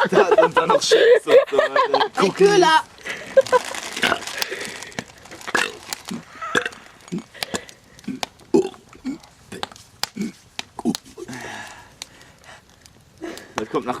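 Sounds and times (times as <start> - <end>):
man burping: 4.0 - 4.4, 5.5 - 7.4, 8.0 - 11.4.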